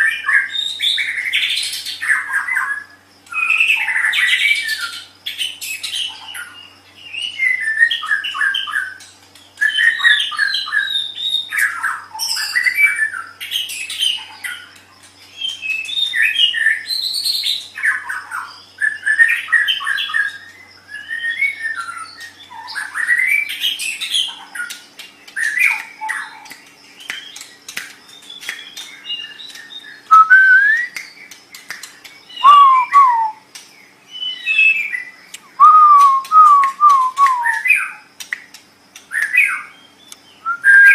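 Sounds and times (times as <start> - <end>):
songbird whistling and chattering: 15.3 - 38.4, 39.1 - 40.9.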